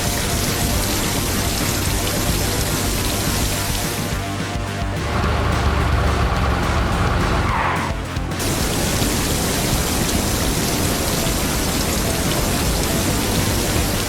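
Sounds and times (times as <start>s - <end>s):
loud rushing hiss: 0.0s - 4.1s, 8.4s - 14.0s
cartoon background music: 0.0s - 14.0s.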